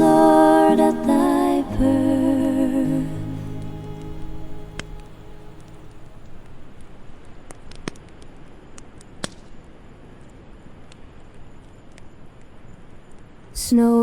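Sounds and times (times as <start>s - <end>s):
wood fire crackling: 2.7s - 8.4s.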